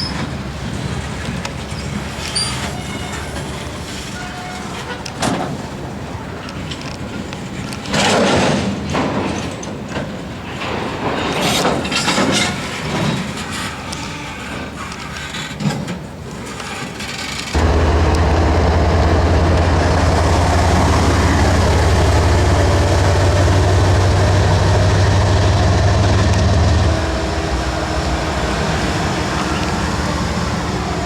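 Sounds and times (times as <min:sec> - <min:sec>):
diesel locomotive engine running: 0:17.5 - 0:31.0.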